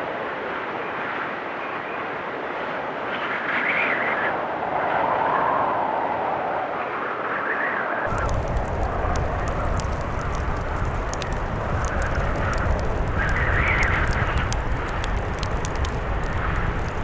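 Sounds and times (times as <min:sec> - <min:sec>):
blizzard wind gusting: 0:08.1 - 0:17.0
wood fire crackling: 0:08.1 - 0:17.0.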